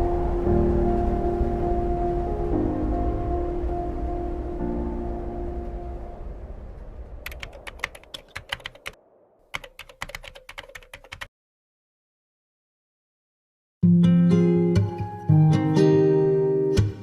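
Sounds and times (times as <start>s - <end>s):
ambient music: 0.0s - 9.2s
rapid sharp clicks: 7.2s - 11.3s.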